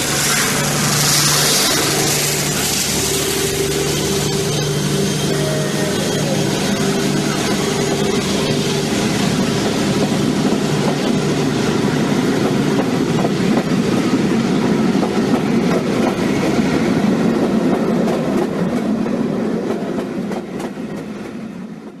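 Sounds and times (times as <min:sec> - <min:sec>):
model train motor hum: 0:00.0 - 0:14.2.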